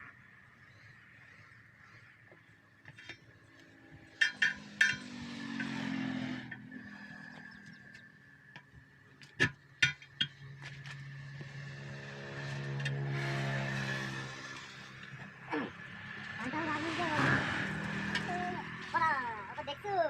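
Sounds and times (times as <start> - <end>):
metal tools clinking: 2.9 - 6.7.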